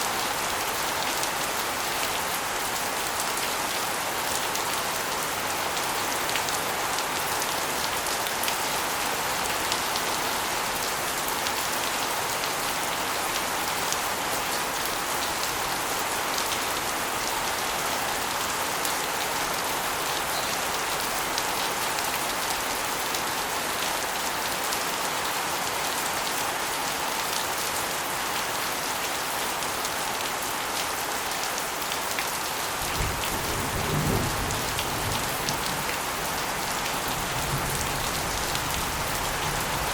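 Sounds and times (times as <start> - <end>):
rain splashing on concrete: 0.0 - 39.9.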